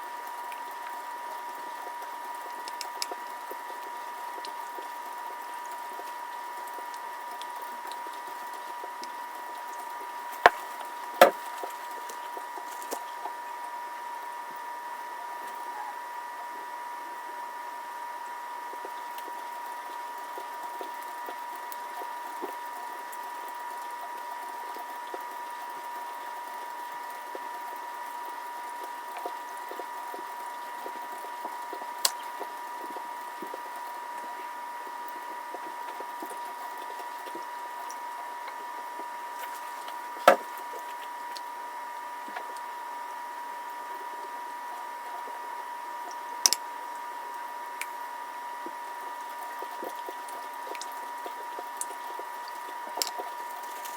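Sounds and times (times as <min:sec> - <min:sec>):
steady high hum: 0:00.0 - 0:53.9.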